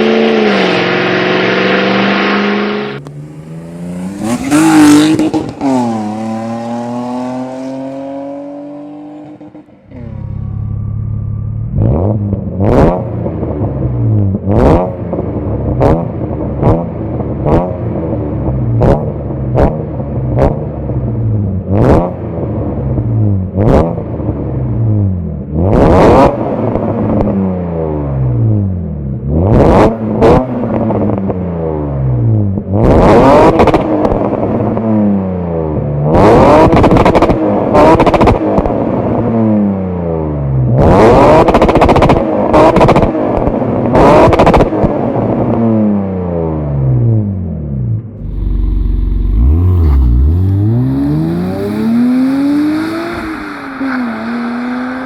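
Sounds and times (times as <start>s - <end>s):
car engine revving: 0.0s - 24.5s, 48.2s - 55.0s.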